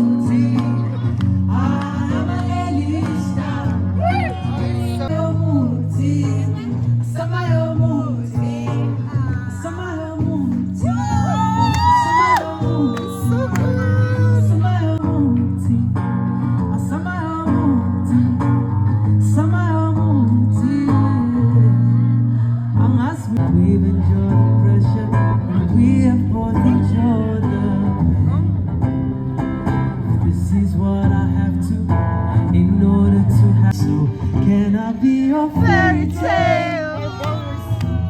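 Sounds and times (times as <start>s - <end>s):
acoustic guitar: 0.0s - 38.0s
person singing: 6.0s - 15.1s, 33.7s - 38.0s.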